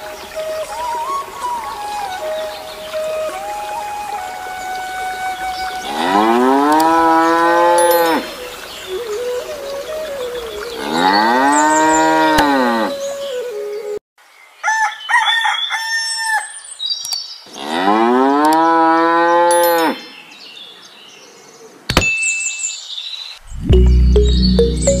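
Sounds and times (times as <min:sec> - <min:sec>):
cow mooing: 0:05.9 - 0:08.3.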